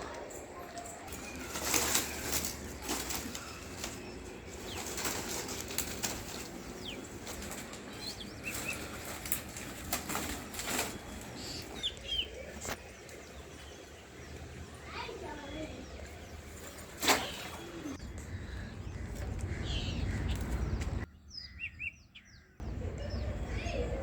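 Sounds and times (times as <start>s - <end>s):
rustles and knocks: 1.0s - 11.7s.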